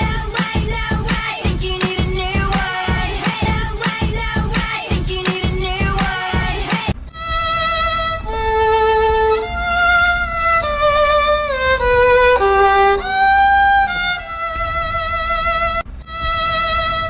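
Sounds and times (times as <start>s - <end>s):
violin playing slow melody: 7.1s - 17.0s.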